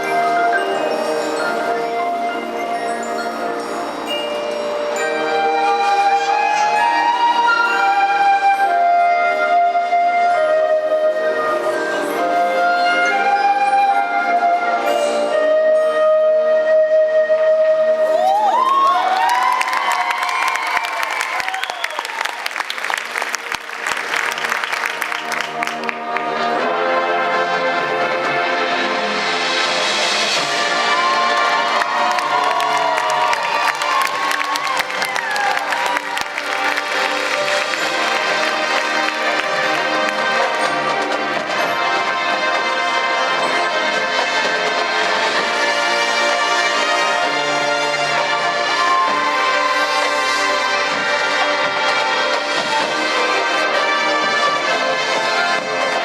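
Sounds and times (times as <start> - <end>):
crowd whoops: 18.0 - 22.9, 30.6 - 40.4
crowd clapping: 18.5 - 26.6, 31.0 - 41.7
brass band chord: 25.4 - 33.1, 35.7 - 56.0.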